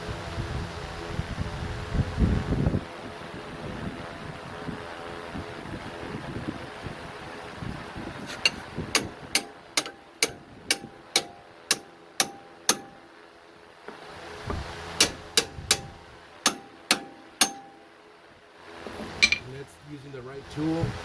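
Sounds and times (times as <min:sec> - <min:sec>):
mallet striking metal: 0:08.3 - 0:13.1, 0:15.0 - 0:17.9, 0:19.2 - 0:19.5.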